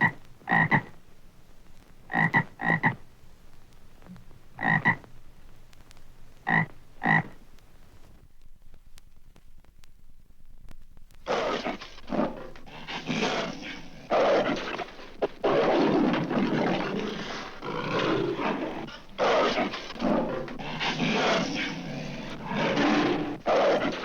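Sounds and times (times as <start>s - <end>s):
leopard snarling and growling: 11.3s - 24.0s.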